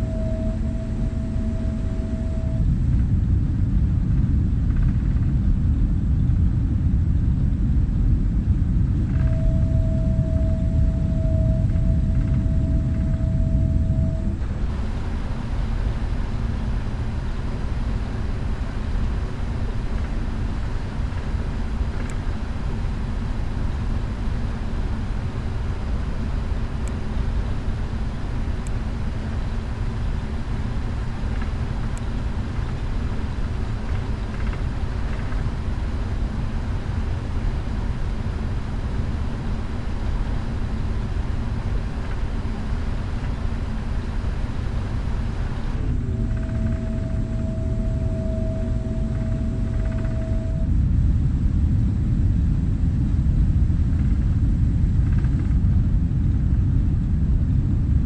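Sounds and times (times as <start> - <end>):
aircraft cabin engine rumble: 0.0 - 2.6, 9.1 - 50.7
faint steady tones: 0.0 - 3.1, 9.0 - 50.8
faint ticks: 14.4 - 47.1.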